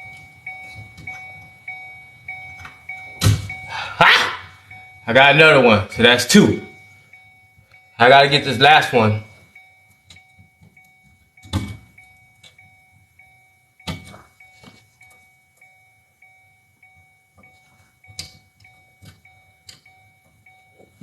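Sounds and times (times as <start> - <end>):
faint electronic chime: 0.0 - 3.9, 4.5 - 21.0.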